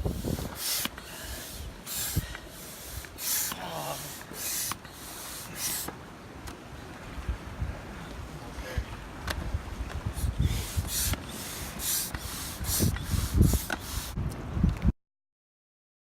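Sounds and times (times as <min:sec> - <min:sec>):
oars splashing in water: 0:00.4 - 0:06.7, 0:09.9 - 0:14.1.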